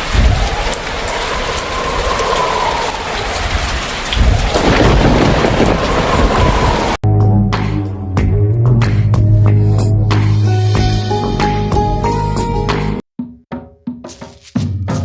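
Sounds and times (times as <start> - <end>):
heavy rain: 0.0 - 7.0
thunder rumbling: 0.0 - 7.0
music: 7.0 - 15.0.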